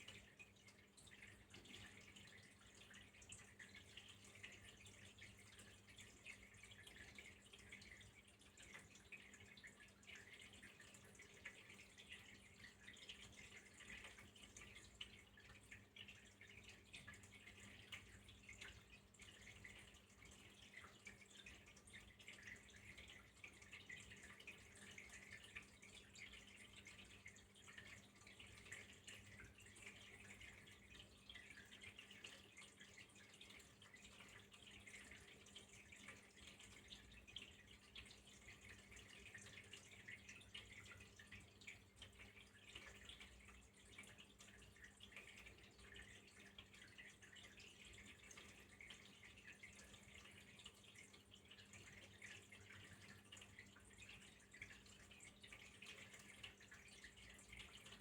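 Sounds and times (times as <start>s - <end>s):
water trickling and dripping: 0.0s - 58.0s.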